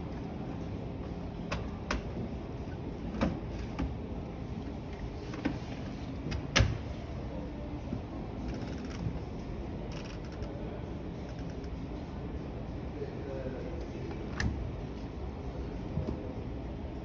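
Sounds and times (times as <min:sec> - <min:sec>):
shop floor hum: 0:00.0 - 0:17.0
washing machine doors opening and shutting: 0:01.3 - 0:04.0, 0:05.2 - 0:07.0, 0:14.2 - 0:14.7.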